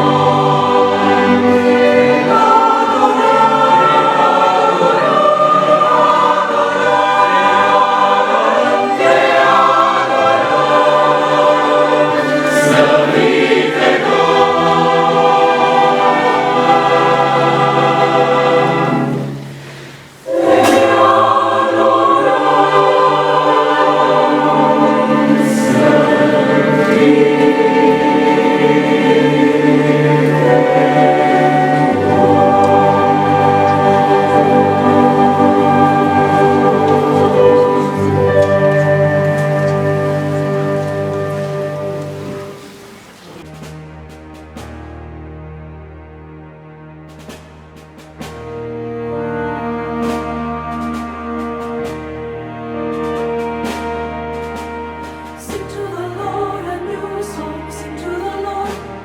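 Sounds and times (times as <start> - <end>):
choir singing: 0.0 - 43.4, 55.3 - 59.0
instrumental accompaniment: 0.0 - 59.0.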